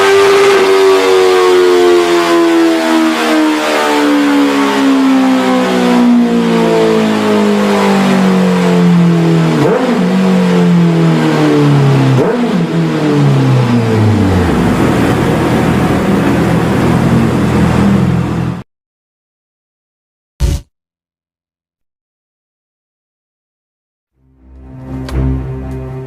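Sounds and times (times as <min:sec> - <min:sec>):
motorcycle engine revving: 0:00.0 - 0:18.6.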